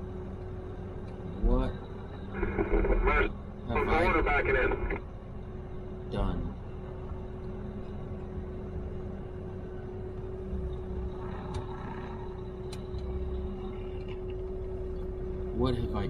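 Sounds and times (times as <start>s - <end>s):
truck engine and road noise: 0.0s - 16.0s
light clicks: 12.7s - 13.1s.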